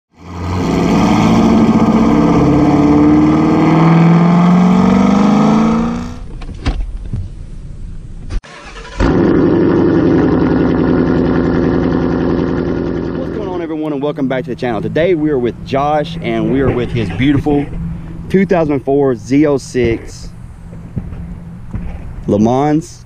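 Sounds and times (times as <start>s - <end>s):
car engine accelerating: 0.1s - 6.3s, 8.5s - 18.3s.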